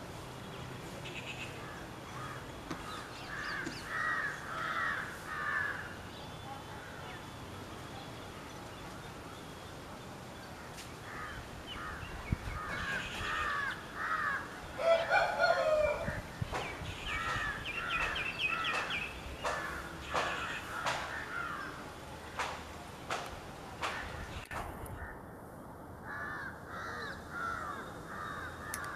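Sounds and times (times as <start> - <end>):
birds calling: 0.0 - 25.2, 26.0 - 28.9
high bird chatter: 0.3 - 23.2.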